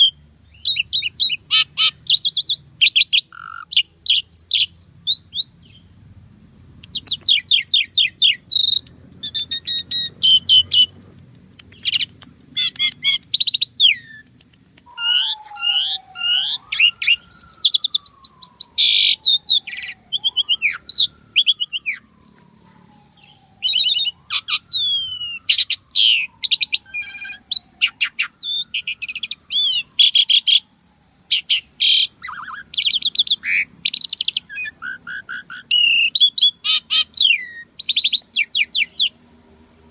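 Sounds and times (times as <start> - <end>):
starling singing and chattering: 0.0 - 6.0, 6.8 - 39.9
long falling whistle: 14.9 - 22.3.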